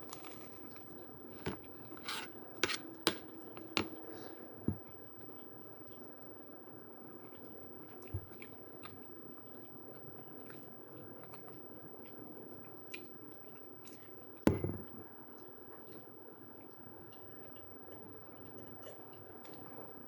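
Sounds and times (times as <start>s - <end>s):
low room hum: 0.0s - 20.0s
knock on table: 14.5s - 14.9s.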